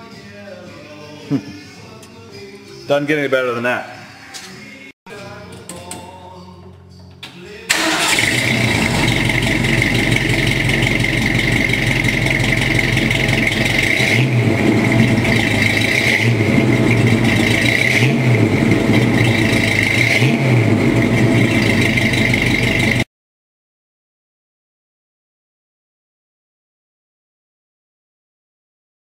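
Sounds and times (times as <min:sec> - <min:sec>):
car engine idling and revving: 0:07.7 - 0:23.0.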